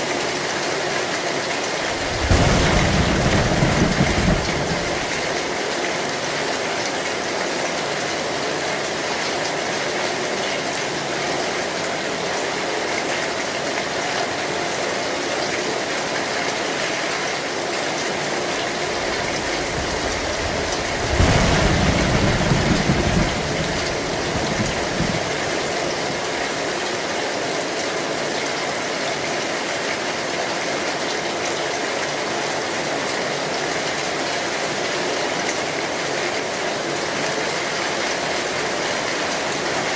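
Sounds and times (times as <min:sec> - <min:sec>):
heavy rain on a metal roof: 0:00.0 - 0:39.9
low rumble of thunder: 0:01.8 - 0:05.6, 0:18.6 - 0:26.3.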